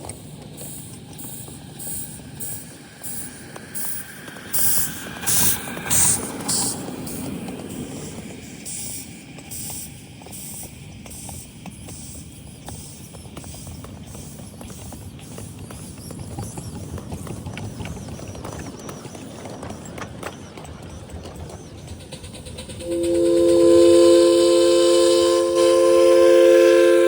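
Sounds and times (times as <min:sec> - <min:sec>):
low train rumble: 0:00.0 - 0:27.0
steam locomotive exhaust chuffs: 0:00.0 - 0:27.0
wheel clicks over rail joints: 0:09.5 - 0:22.8.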